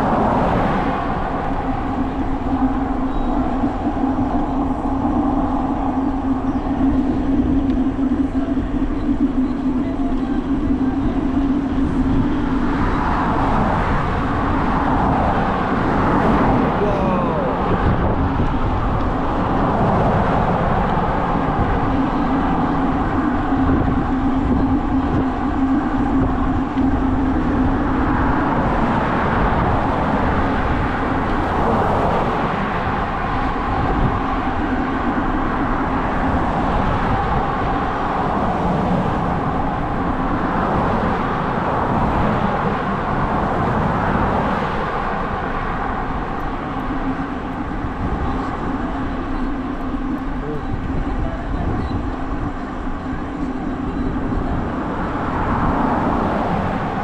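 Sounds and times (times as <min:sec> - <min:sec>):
bicycle tyre rumble on road: 0:00.0 - 0:57.0
wind over microphone: 0:00.0 - 0:57.0.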